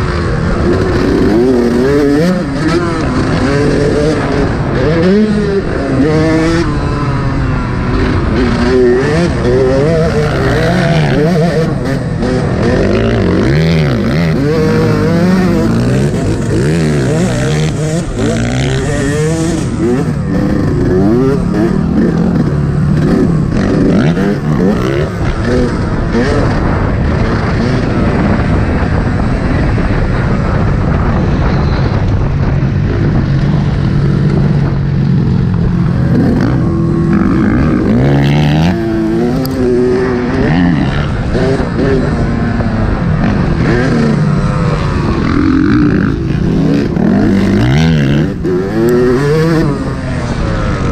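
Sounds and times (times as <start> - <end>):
motocross bike engine revving: 0.0 - 50.9.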